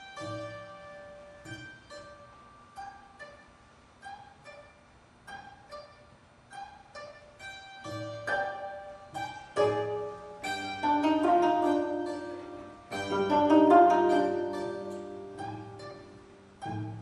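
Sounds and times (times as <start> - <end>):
plucked zither ensemble: 0.0 - 17.0.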